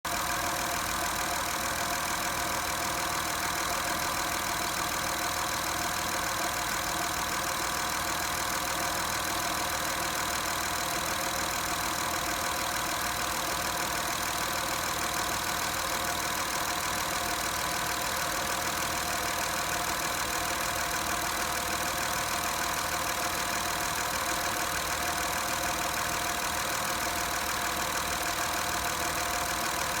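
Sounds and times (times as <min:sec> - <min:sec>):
car engine idling: 0:00.1 - 0:30.0.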